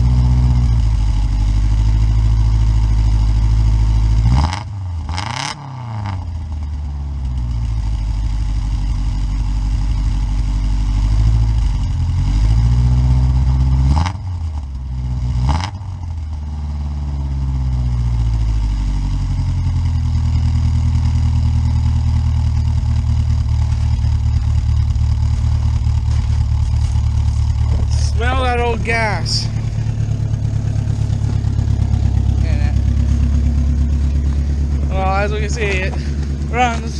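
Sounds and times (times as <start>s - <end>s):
car engine idling: 0.0s - 36.9s.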